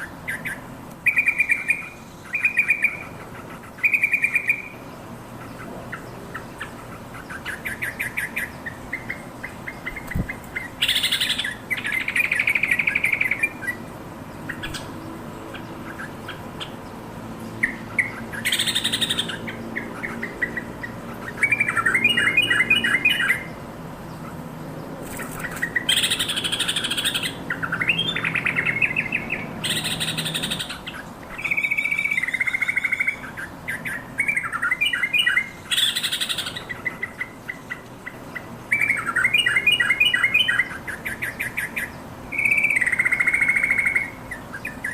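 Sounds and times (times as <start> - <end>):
bird chattering calls: 0.0 - 16.9, 17.5 - 24.4, 25.0 - 44.9.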